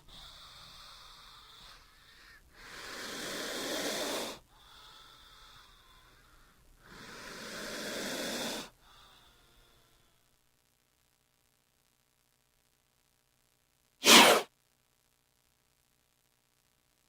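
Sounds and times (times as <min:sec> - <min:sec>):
snake hissing: 0:02.6 - 0:04.4, 0:06.8 - 0:08.7, 0:14.0 - 0:14.5.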